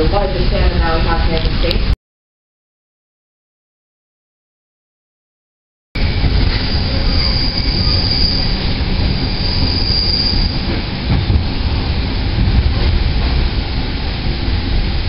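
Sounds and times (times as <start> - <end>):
high metallic squeal: 6.0 - 8.6, 9.2 - 10.6
train cars rumbling: 6.0 - 15.0.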